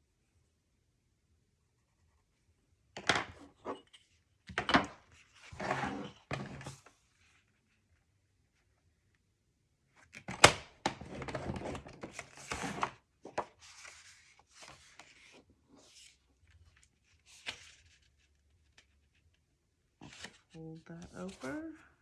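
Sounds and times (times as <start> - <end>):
paper rustling: 11.2 - 19.4, 20.0 - 21.8.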